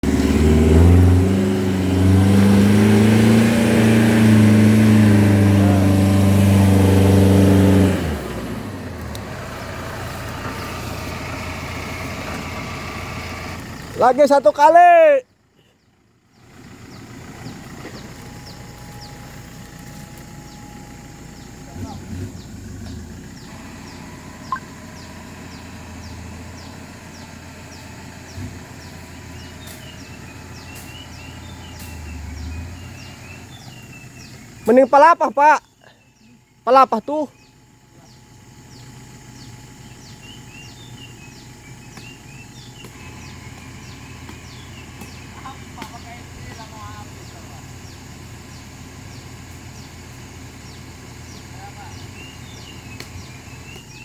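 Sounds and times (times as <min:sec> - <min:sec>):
pickup engine revving: 0:00.0 - 0:14.7, 0:16.4 - 0:35.5, 0:37.0 - 0:54.0
high falling chirp: 0:22.4 - 0:27.9.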